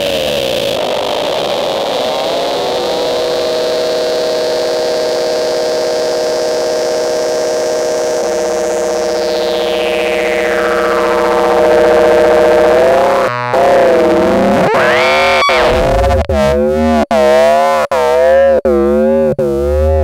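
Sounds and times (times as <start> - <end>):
buzzy synthesizer drone: 0.0 - 20.0
falling high synth sweep: 8.5 - 16.4.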